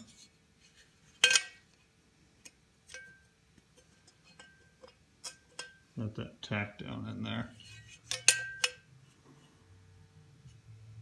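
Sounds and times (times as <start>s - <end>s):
metal tools clanking on workbench: 7.7s - 8.8s.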